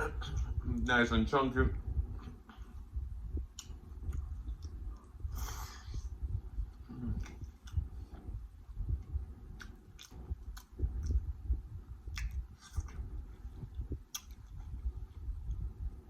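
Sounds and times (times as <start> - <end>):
wet squishing of food: 9.0 - 15.7.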